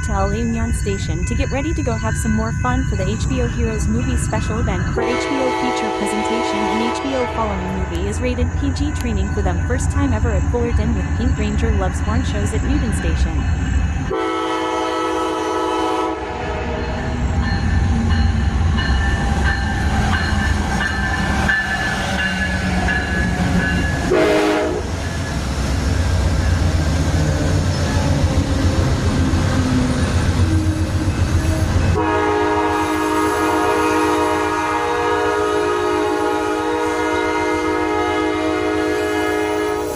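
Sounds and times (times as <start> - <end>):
diesel locomotive rumble: 0.0 - 39.9
locomotive horn blasts: 5.0 - 7.9, 14.1 - 16.8, 24.1 - 24.9, 31.4 - 39.9.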